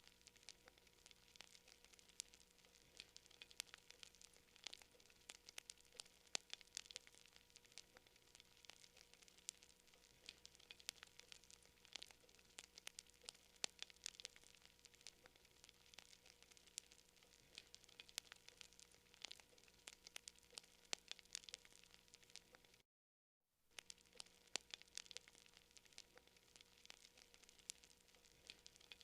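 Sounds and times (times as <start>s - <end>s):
campfire crackling and popping: 0.0s - 22.8s, 23.7s - 29.0s
faint hiss: 0.0s - 22.8s.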